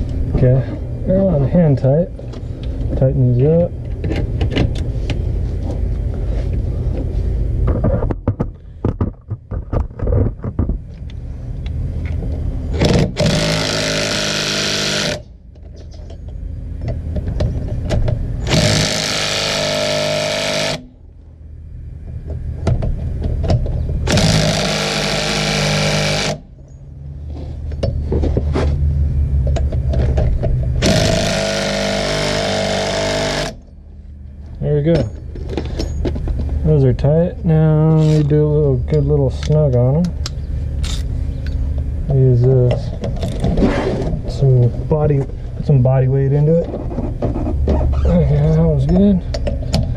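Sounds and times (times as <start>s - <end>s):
impact wrench tightening nuts: 17.9s - 20.8s, 23.4s - 26.4s, 29.9s - 33.6s.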